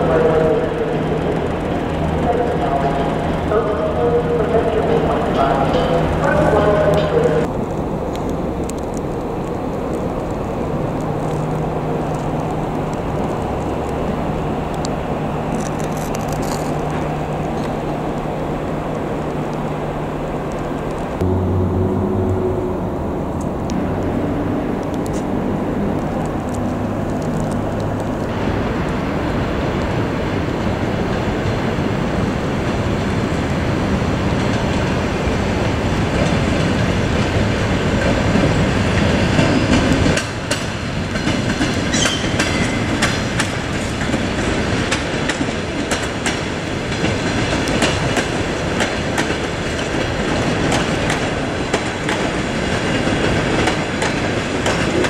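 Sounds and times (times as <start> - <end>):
steady low hum: 21.2 - 27.0
train wheels clattering over rails: 34.2 - 55.0.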